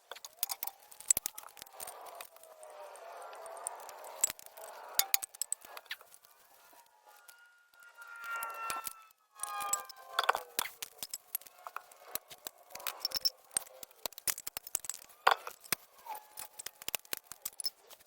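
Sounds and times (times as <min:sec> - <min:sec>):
tools and metal parts clattering: 0:00.0 - 0:02.4, 0:03.4 - 0:06.3, 0:08.7 - 0:18.0
metallic ring: 0:04.9 - 0:05.6, 0:07.1 - 0:11.8.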